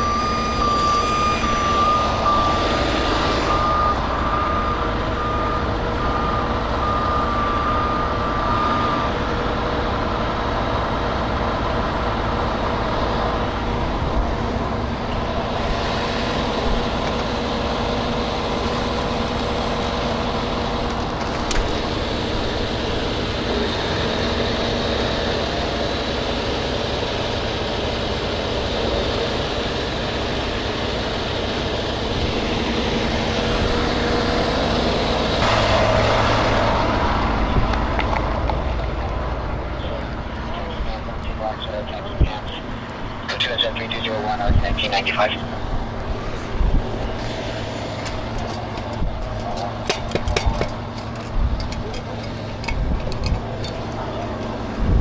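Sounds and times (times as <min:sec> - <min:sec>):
truck reversing alarm beeping: 0:00.0 - 0:21.0, 0:21.7 - 0:37.7
truck engine running: 0:00.0 - 0:55.0.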